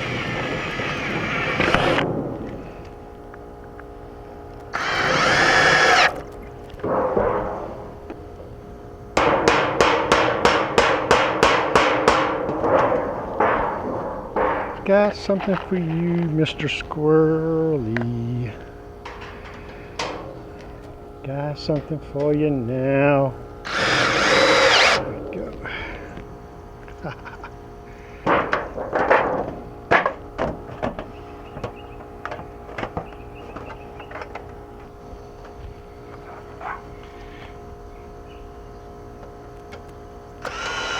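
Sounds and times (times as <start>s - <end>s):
steady hum: 0.0s - 40.9s
hammer striking sheet metal: 9.2s - 14.8s.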